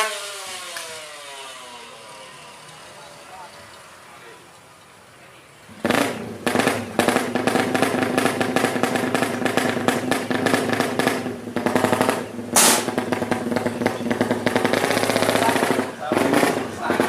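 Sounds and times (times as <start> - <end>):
motorcycle engine revving: 0.0 - 4.1, 5.6 - 17.0
loud exhaust burst: 5.7 - 17.0.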